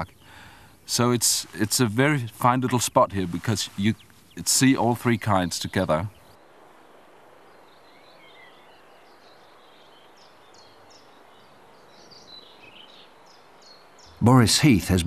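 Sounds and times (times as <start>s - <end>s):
soft steady hiss: 0.0s - 15.0s
bird singing chirps and trills: 0.9s - 15.0s.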